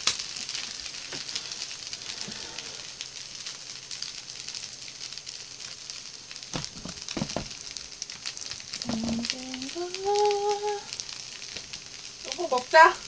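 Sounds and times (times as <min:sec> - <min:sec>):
fried rice sizzling in a pan: 0:00.0 - 0:13.0
knocks: 0:06.6 - 0:07.6.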